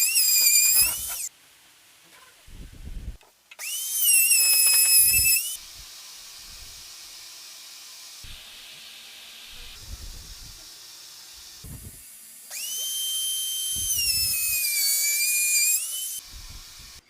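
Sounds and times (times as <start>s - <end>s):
power tool high whine: 0.0s - 1.3s, 3.6s - 17.0s
steady hiss: 4.4s - 14.7s.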